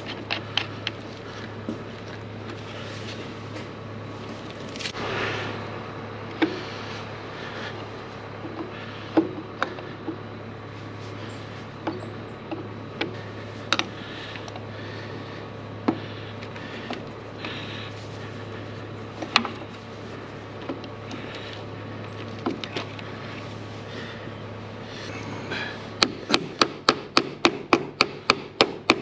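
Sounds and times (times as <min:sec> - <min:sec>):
steady low hum: 0:00.0 - 0:29.0
hand tools clicking and knocking: 0:26.0 - 0:29.0.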